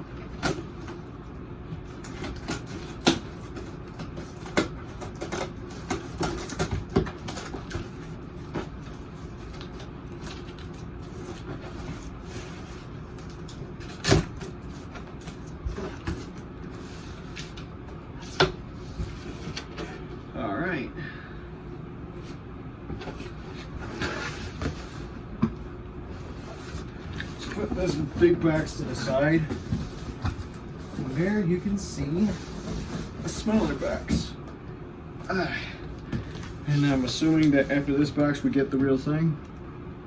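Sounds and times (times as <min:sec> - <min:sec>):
steady low hum: 0:00.0 - 0:40.0
scissors cutting cardboard box: 0:01.9 - 0:16.4.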